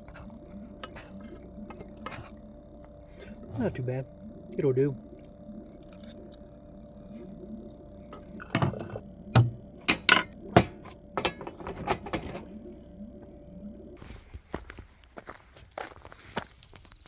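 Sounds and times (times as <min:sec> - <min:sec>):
faint steady hum: 0:00.0 - 0:17.0
utensil clinking against cookware: 0:08.5 - 0:12.4.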